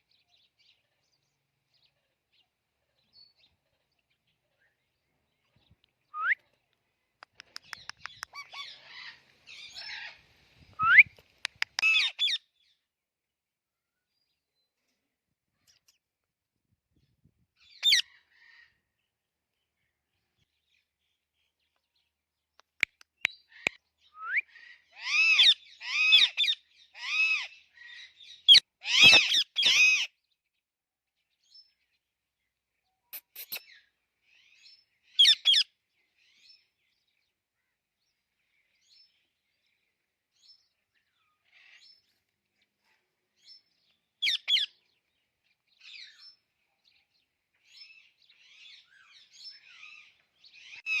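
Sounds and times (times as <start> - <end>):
parrot calling loudly: 11.8 - 12.4, 25.0 - 27.5, 28.8 - 30.1, 35.2 - 35.6, 44.2 - 44.7
parrot soft chattering: 33.2 - 33.7.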